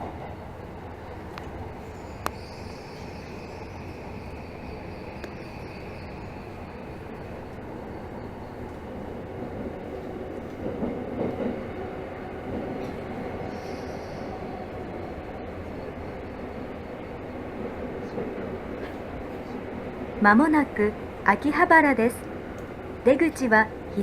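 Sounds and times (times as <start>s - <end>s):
subway train wheels rumbling: 0.0s - 24.0s
faint high squeal: 1.8s - 7.4s, 13.4s - 14.9s.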